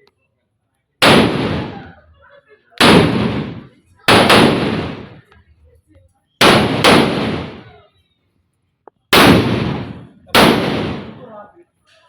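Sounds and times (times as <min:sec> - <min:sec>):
firecrackers exploding: 0:01.0 - 0:02.1, 0:02.8 - 0:05.3, 0:06.4 - 0:07.9, 0:09.1 - 0:11.4.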